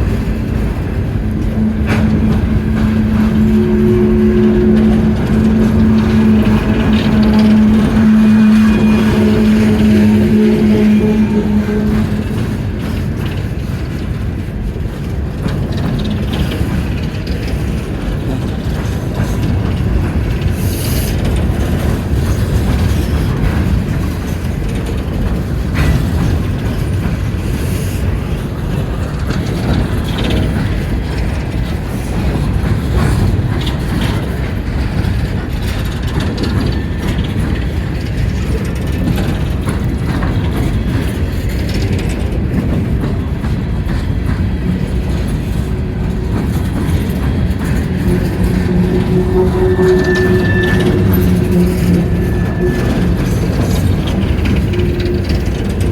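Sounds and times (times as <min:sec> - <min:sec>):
empty freight cars clanking: 0:00.0 - 0:55.9
train wheels rolling on rail: 0:00.0 - 0:55.9.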